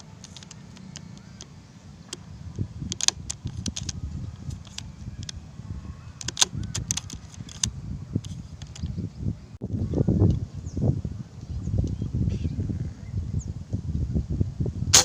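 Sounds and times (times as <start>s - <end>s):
handling clicks and rattling: 0.0s - 2.2s, 2.9s - 5.4s, 6.2s - 8.9s.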